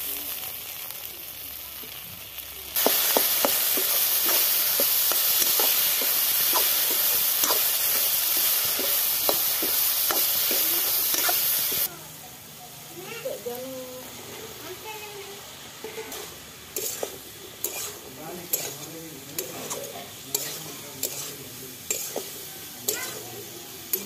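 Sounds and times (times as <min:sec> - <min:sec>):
food sizzling in a pan: 0:00.0 - 0:24.0
metal spatula scraping pan: 0:02.8 - 0:11.8, 0:16.8 - 0:23.2.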